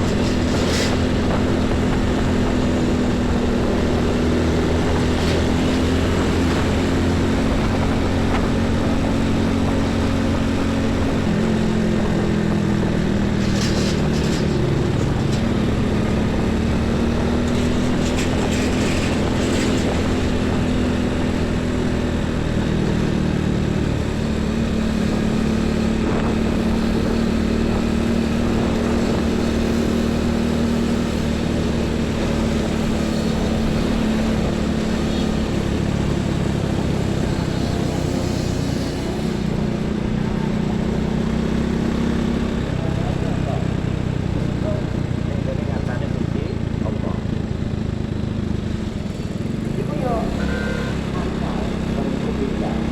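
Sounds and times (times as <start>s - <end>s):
trucks' diesel engines passing: 0.0s - 52.9s.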